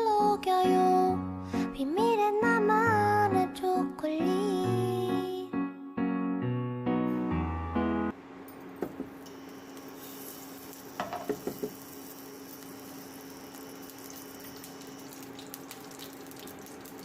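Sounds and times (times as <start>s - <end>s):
tap running into sink: 11.0s - 11.8s.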